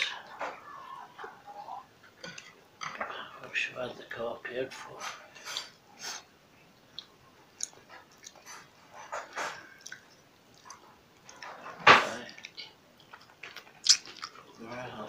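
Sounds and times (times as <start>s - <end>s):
wet chewing and lip smacks: 6.8s - 8.7s, 9.3s - 11.5s, 12.3s - 14.6s.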